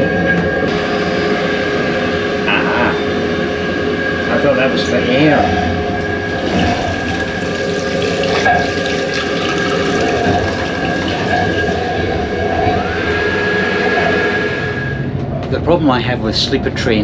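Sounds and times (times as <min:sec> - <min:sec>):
high constant whine: 0:00.0 - 0:17.0
train running noise: 0:00.0 - 0:17.0
tap water running into basin: 0:06.3 - 0:11.9.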